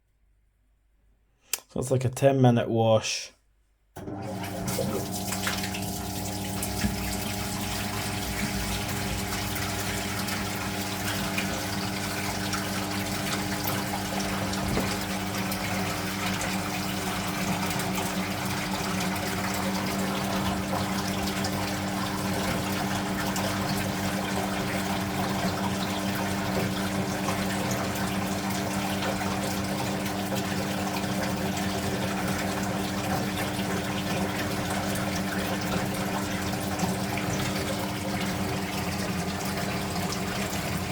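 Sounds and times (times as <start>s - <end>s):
washing machine motor hum: 4.0s - 40.9s
water rushing in washing machine: 4.0s - 40.9s.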